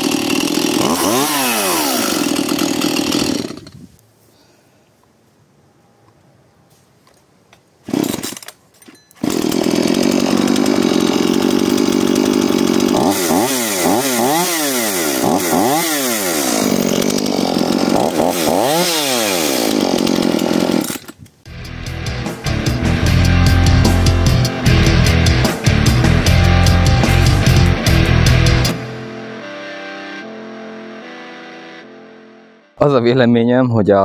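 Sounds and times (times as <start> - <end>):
chainsaw running at high revs: 0.0 - 3.8, 7.9 - 8.4, 9.2 - 21.1, 23.0 - 28.8
heavy rock music: 21.5 - 32.7.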